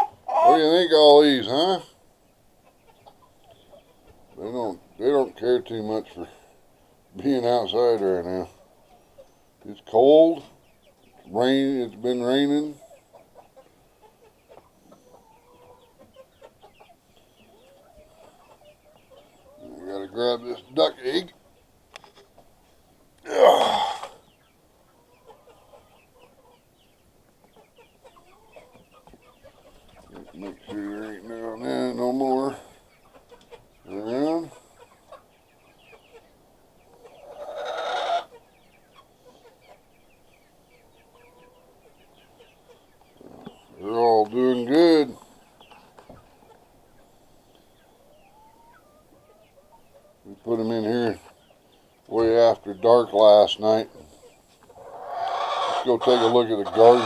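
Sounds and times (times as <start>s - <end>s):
rough loud chicken call: 0.0s - 0.8s, 23.2s - 24.3s, 37.2s - 38.4s, 54.7s - 57.0s
hens clucking: 0.0s - 57.0s.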